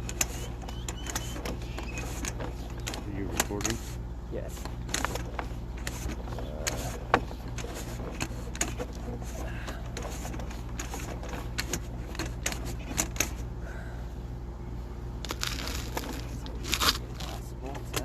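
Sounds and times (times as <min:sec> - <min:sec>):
cable clicking and knocking in pipe: 0:00.0 - 0:03.8
low hum: 0:04.9 - 0:18.0.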